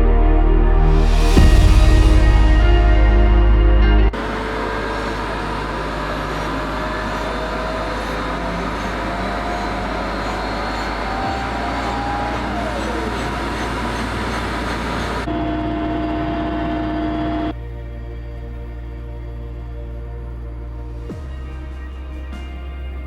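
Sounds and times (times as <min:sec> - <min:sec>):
helicopter running: 0:04.1 - 0:16.2.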